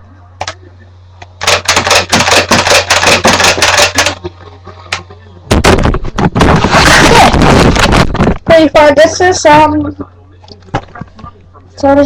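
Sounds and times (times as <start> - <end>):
loud noisy rush: 6.4 - 8.3.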